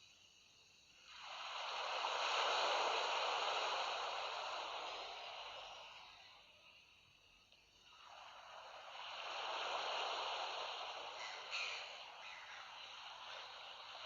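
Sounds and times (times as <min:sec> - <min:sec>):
sea wave washing in: 0:01.0 - 0:06.8, 0:07.9 - 0:14.0.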